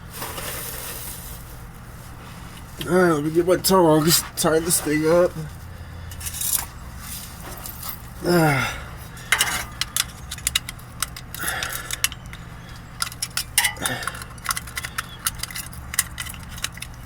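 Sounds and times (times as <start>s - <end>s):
metal tongs clinking on metal: 9.3s - 12.4s, 13.0s - 17.0s.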